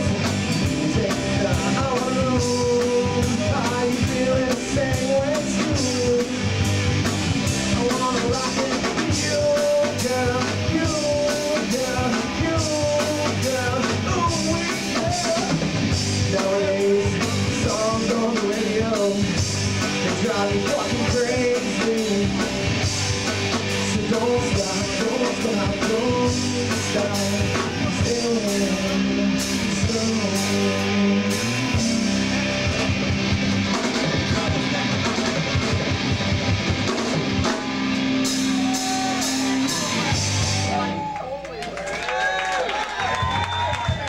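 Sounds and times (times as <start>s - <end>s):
live rock band playing: 0.0s - 44.0s.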